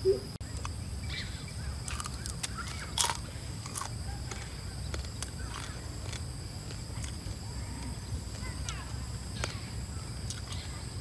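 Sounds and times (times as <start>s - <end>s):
birds chirping: 0.0s - 6.2s
faint high-pitched hum: 0.0s - 11.0s.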